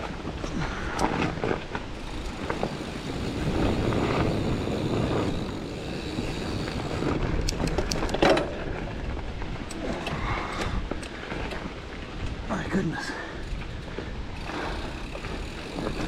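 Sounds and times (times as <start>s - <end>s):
bike clicks and rattles: 0.0s - 12.5s, 13.2s - 16.0s
bike tyre and wind rumble: 0.0s - 16.0s.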